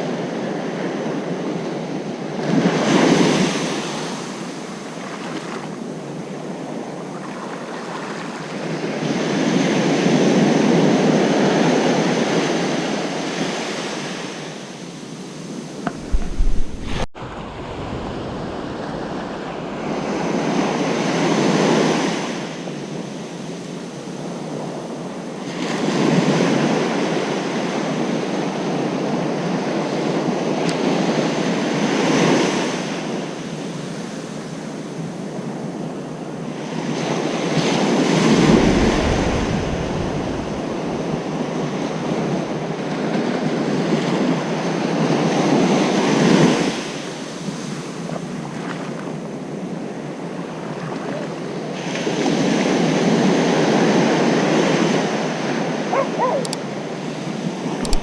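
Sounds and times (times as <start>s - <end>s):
ocean surf breaking: 13.3s - 22.6s, 36.6s - 58.0s.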